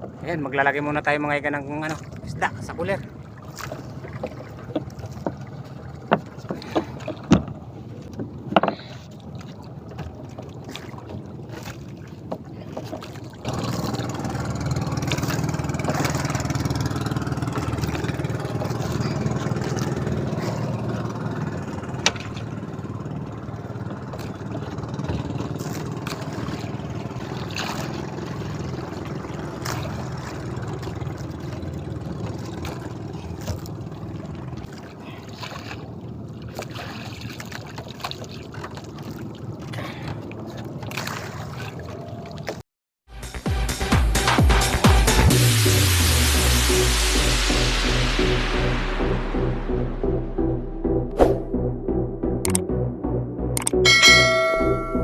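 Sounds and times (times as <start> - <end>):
water noise: 0.0 - 42.6, 44.2 - 55.0
motorboat engine running: 0.0 - 55.0
sharp knocks on boat: 3.6 - 9.1, 12.3 - 19.1, 21.8 - 22.7, 23.8 - 28.1.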